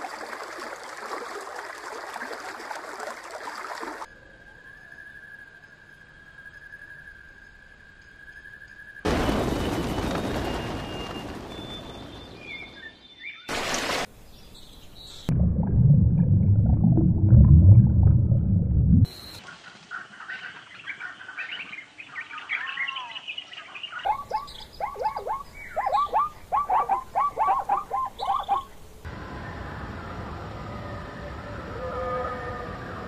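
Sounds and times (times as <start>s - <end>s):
birds chirping: 10.0s - 13.5s, 19.1s - 28.8s
low rumble: 15.3s - 19.1s.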